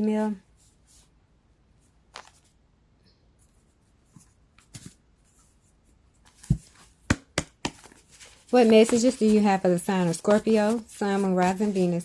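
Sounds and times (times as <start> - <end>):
cards rustling and tapping: 2.1 - 2.5, 4.1 - 5.5, 6.2 - 12.0.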